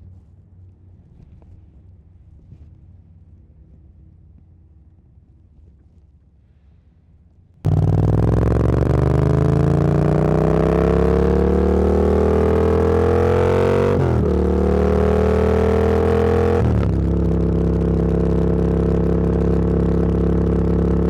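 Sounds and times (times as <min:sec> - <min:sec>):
motorcycle engine accelerating: 0:07.7 - 0:21.0.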